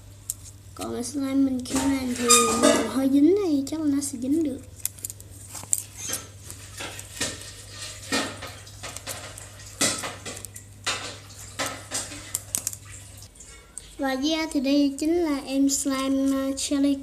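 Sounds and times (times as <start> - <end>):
slime clicking and crackling: 4.7 - 7.3.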